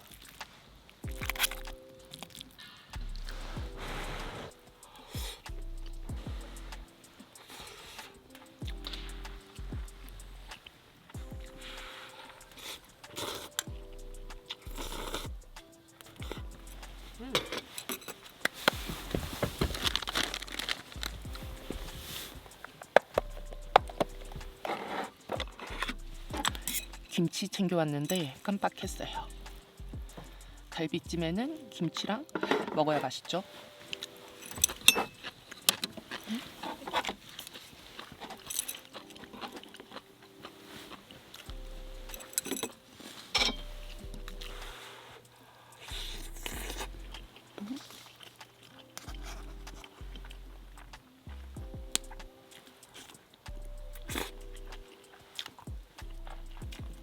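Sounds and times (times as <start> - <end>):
chewing: 0.0 - 27.1, 33.9 - 57.0
utensils clinking against dishes: 17.2 - 18.8, 24.3 - 28.9, 31.8 - 41.5, 42.1 - 44.0
plastic packaging crinkling: 17.2 - 23.4.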